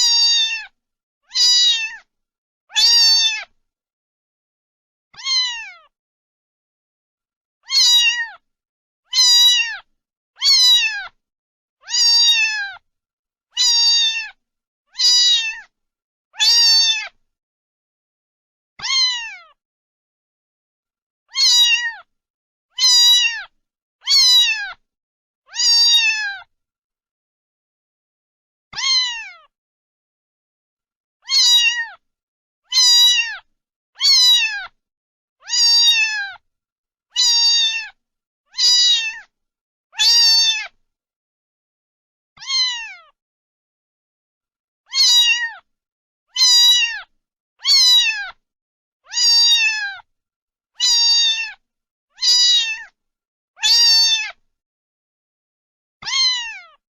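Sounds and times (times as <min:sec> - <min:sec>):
cat meowing: 0:00.0 - 0:02.1, 0:02.7 - 0:03.6, 0:05.2 - 0:05.9, 0:07.6 - 0:08.4, 0:09.1 - 0:11.2, 0:11.8 - 0:12.8, 0:13.6 - 0:15.7, 0:16.4 - 0:17.2, 0:18.8 - 0:19.6, 0:21.3 - 0:22.1, 0:22.7 - 0:24.8, 0:25.5 - 0:26.5, 0:28.7 - 0:29.5, 0:31.2 - 0:32.0, 0:32.7 - 0:34.8, 0:35.4 - 0:36.4, 0:37.1 - 0:39.3, 0:40.0 - 0:40.8, 0:42.4 - 0:43.2, 0:44.9 - 0:45.7, 0:46.3 - 0:48.4, 0:49.1 - 0:50.1, 0:50.8 - 0:53.0, 0:53.6 - 0:54.4, 0:56.0 - 0:56.8.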